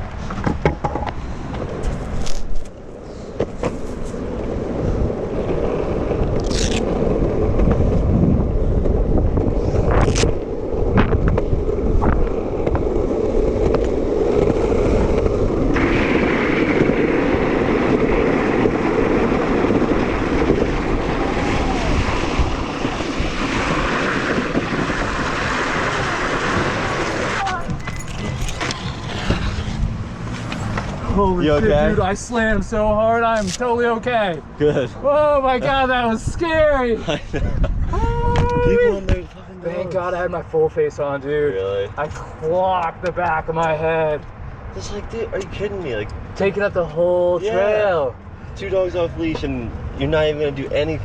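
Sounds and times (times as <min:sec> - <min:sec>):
longboard wheels rolling on asphalt: 0:00.0 - 0:51.0
wind on microphone: 0:03.6 - 0:33.6, 0:35.6 - 0:39.5.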